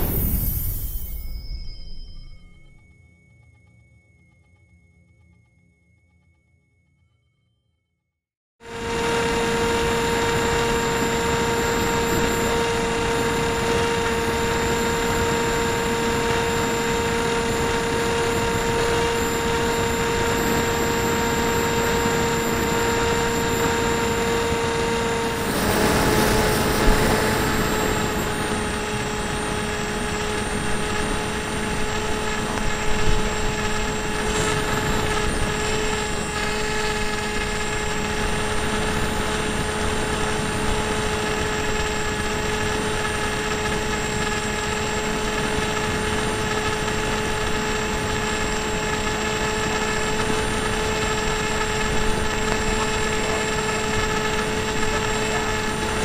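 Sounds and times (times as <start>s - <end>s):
rushing air: 0.0s - 1.8s, 24.9s - 29.2s
model plane motor whine: 8.6s - 56.0s.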